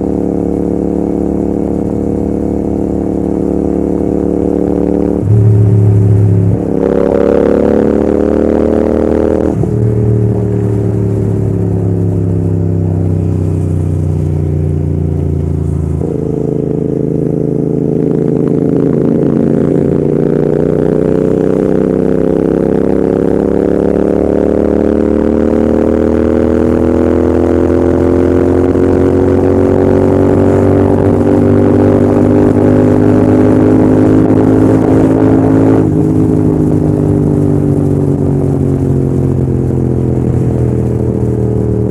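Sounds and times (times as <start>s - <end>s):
motorcycle engine running hard: 0.0s - 41.9s.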